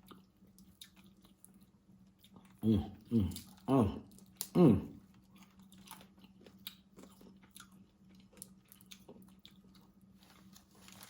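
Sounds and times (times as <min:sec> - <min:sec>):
faint chewing: 0:00.0 - 0:11.0
low steady hum: 0:00.0 - 0:11.0
small clicks and crackles: 0:10.2 - 0:11.0.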